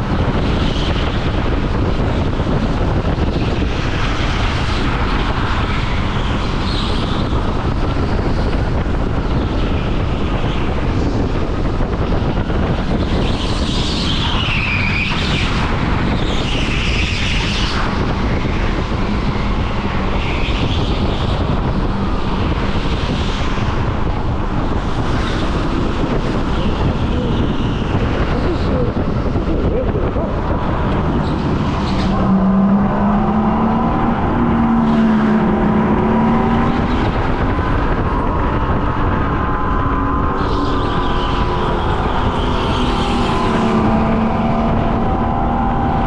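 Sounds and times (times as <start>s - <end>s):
go-kart engine rumble: 0.0s - 46.0s
wind buffeting microphone: 0.0s - 46.0s
high engine whines: 10.0s - 46.0s.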